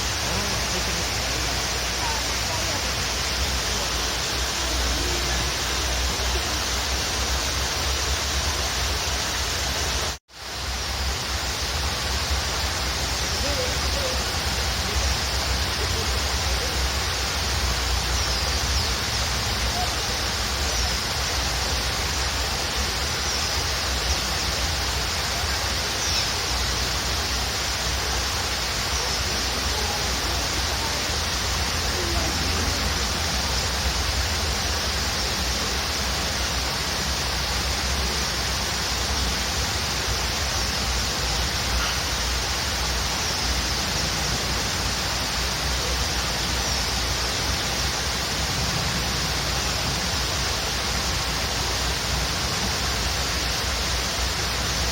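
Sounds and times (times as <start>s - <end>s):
waterfall rushing: 0.0s - 54.9s
faint bird chirps: 25.4s - 26.7s, 41.0s - 42.3s.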